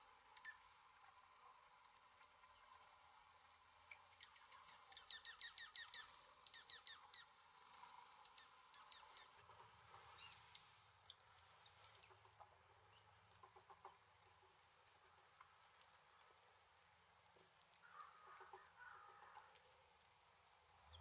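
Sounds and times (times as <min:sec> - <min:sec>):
songbird calling: 0:00.4 - 0:00.7, 0:04.1 - 0:07.4, 0:08.2 - 0:11.2.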